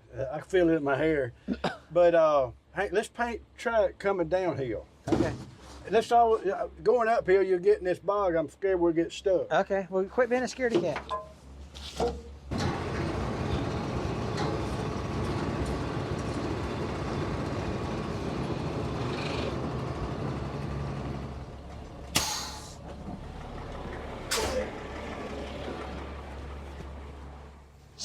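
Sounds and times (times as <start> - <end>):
heavy truck engine running: 12.4 - 28.0
short sharp hisses: 22.1 - 22.8, 24.3 - 24.7.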